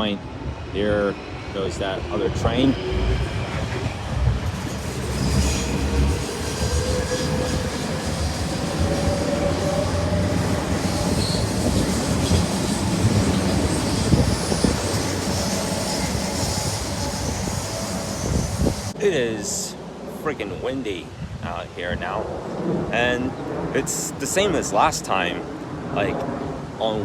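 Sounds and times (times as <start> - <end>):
train wheels rumbling on track: 0.8 - 19.0
faint wheel squeal: 4.7 - 19.0.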